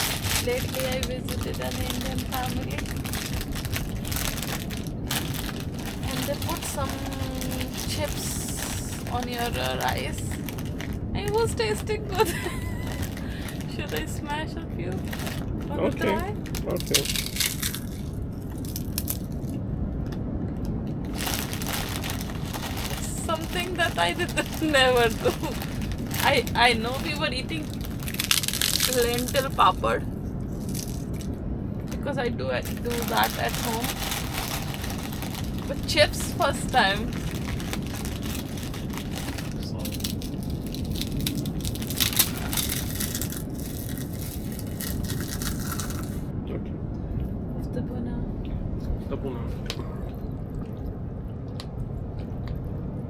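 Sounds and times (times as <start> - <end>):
potato chips crunching: 0.0 - 14.2, 14.9 - 19.6, 21.1 - 29.8, 30.5 - 31.4, 32.6 - 46.3
low rumble: 0.0 - 53.0.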